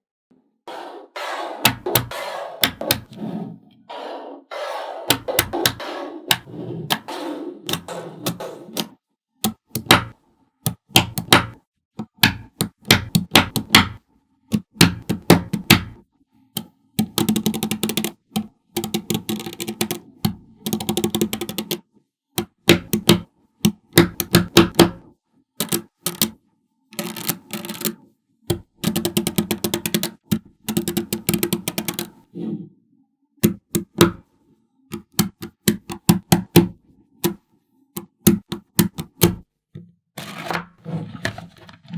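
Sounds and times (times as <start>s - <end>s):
magnetic balls clicking together: 1.6s - 3.1s, 5.1s - 7.1s, 7.7s - 16.0s, 16.6s - 21.8s, 22.4s - 25.0s, 25.6s - 26.4s, 27.0s - 32.2s, 33.4s - 34.3s, 34.9s - 37.4s, 38.0s - 39.4s.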